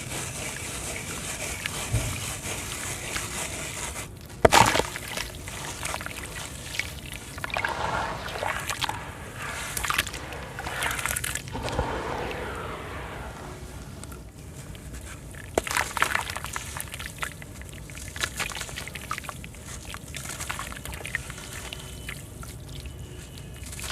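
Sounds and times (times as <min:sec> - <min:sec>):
cement lumps crumbling in water: 0:04.2 - 0:11.6, 0:15.1 - 0:23.9.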